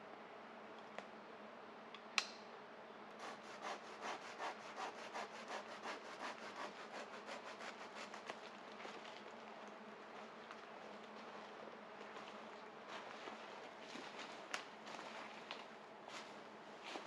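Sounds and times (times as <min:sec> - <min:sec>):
sharp snap: 0:02.2 - 0:02.4
hand saw cutting wood: 0:03.2 - 0:08.4.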